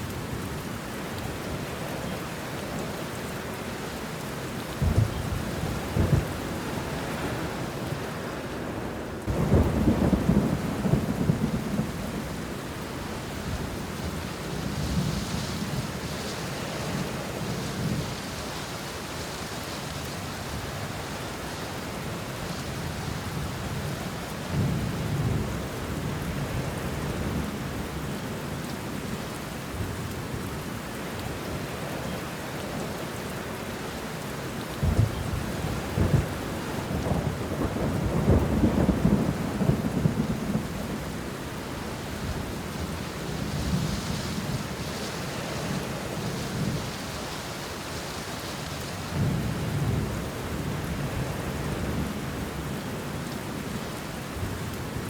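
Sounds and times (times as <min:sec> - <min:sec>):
rain falling on leaves: 0:00.0 - 0:55.0
thunder rumbling: 0:04.8 - 0:07.6, 0:09.3 - 0:12.8, 0:34.8 - 0:41.2.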